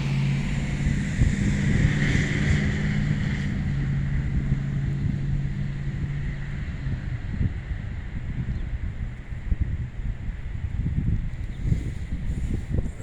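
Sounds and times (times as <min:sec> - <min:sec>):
low engine hum: 0:00.0 - 0:13.0
hiss of wind or traffic: 0:10.6 - 0:13.0.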